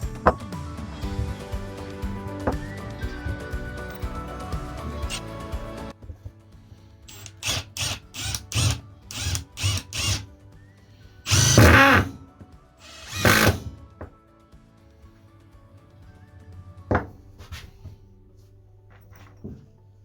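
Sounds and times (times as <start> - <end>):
power tool motor spinning: 4.8 - 5.7, 7.1 - 10.3, 11.3 - 12.2, 12.8 - 13.8.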